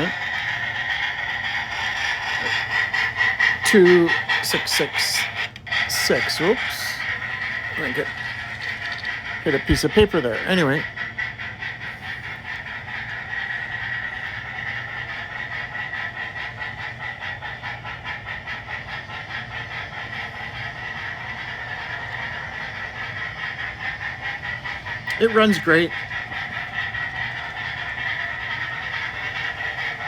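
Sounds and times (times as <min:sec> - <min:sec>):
model train steam chuff from speaker: 0:00.0 - 0:30.0.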